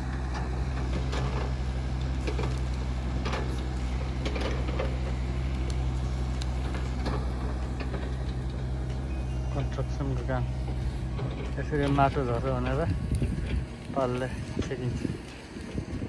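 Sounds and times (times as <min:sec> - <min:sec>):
low engine drone: 0:00.0 - 0:16.0.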